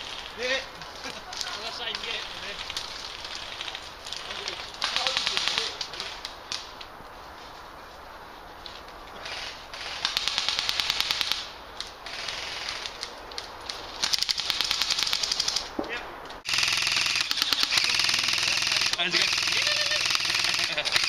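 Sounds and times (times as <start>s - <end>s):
airsoft rifle full-auto bursts: 16.5s - 21.0s.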